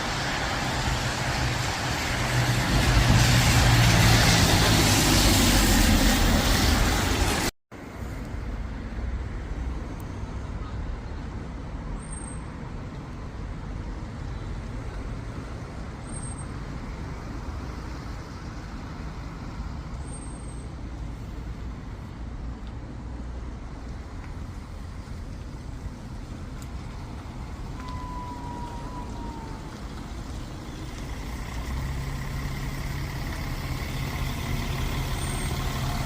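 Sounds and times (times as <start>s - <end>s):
road traffic rumble: 0.0s - 36.0s
siren: 27.7s - 31.1s.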